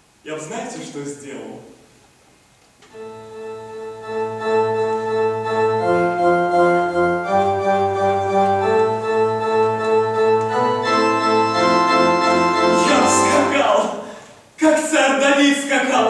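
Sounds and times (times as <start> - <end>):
organ playing sustained chords: 2.9 - 14.0.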